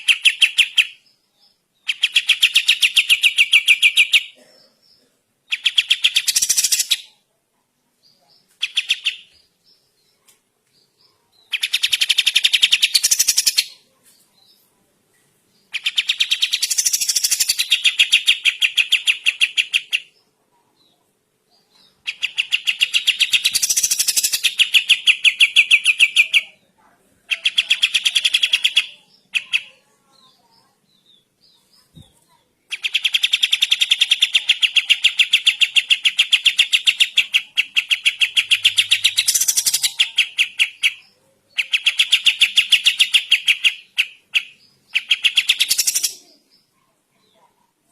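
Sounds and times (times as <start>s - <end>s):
bird trilling: 32.7s - 46.2s.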